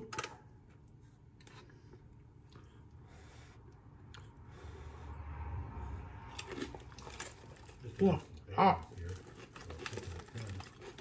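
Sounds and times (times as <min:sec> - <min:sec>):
muffled chewing: 0:00.7 - 0:04.6, 0:06.2 - 0:11.0.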